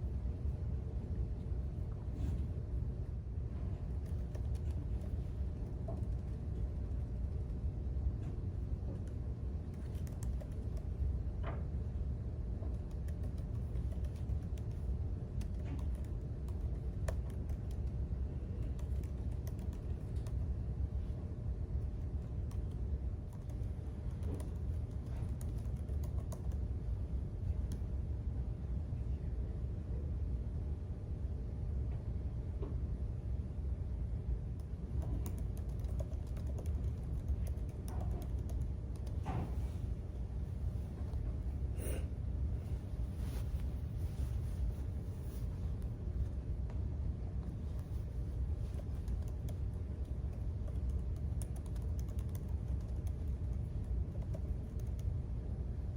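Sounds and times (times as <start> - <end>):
low room hum: 0.0 - 55.9
steady low rumble: 0.0 - 55.9
keyboard typing clicks: 15.4 - 17.9, 34.6 - 39.2, 48.7 - 53.5, 54.1 - 55.1.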